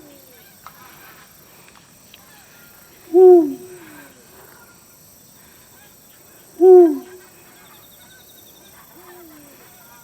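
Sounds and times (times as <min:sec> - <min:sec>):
owl hooting: 0:03.1 - 0:03.8, 0:06.6 - 0:07.2.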